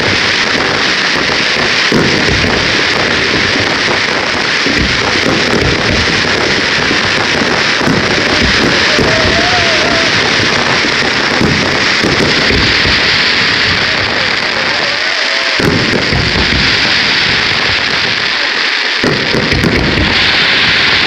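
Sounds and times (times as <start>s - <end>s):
firework booms: 0.0s - 21.0s
fireworks crackling and fizzing: 0.0s - 21.0s.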